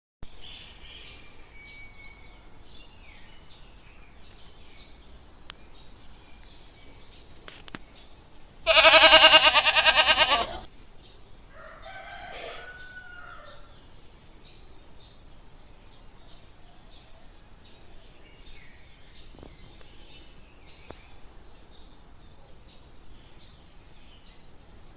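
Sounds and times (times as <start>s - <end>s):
loud animal call: 8.7s - 10.7s.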